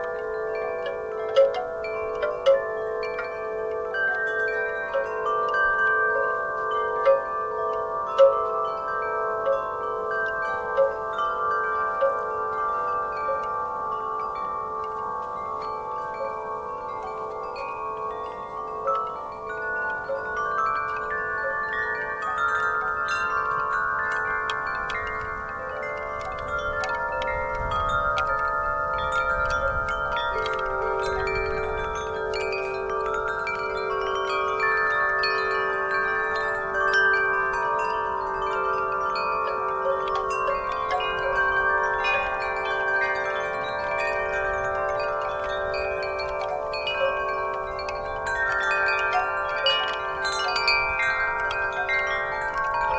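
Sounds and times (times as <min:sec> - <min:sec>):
metal wind chimes ringing: 0:00.0 - 0:52.9
low rumble of wind: 0:11.2 - 0:36.9.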